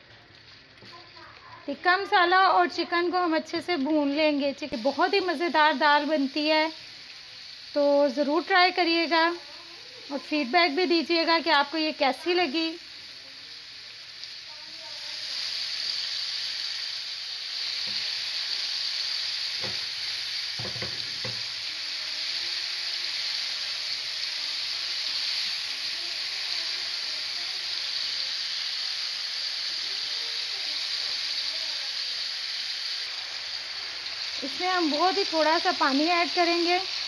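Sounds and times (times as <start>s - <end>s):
chicken sizzling in hot oil: 0.0s - 37.0s
spatula knocking on pan: 20.6s - 21.4s.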